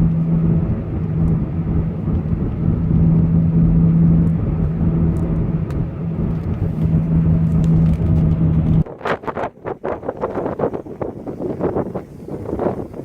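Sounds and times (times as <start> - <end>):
car engine hum: 0.0 - 8.9
road and wind noise: 0.0 - 13.0.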